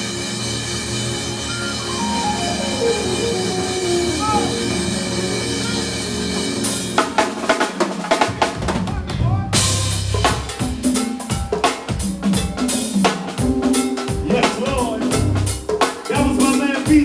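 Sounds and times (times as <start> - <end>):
band chords: 0.0 - 11.0, 13.3 - 16.8
drum kit playing fills: 0.0 - 17.0
cymbal crash: 9.6 - 11.6.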